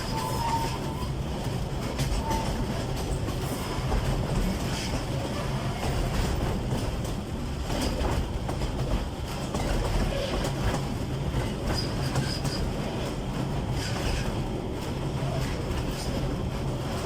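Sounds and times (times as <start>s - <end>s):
wheels squealing on rail: 0.0s - 6.6s, 9.5s - 14.4s
diesel train rumbling: 0.0s - 17.0s
wheels clicking over rail joints: 0.0s - 17.0s.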